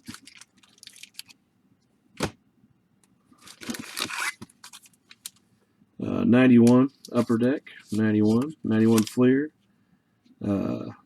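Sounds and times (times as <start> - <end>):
pack wrapper crinkling: 0.0 - 1.4, 3.4 - 5.4, 8.3 - 9.2.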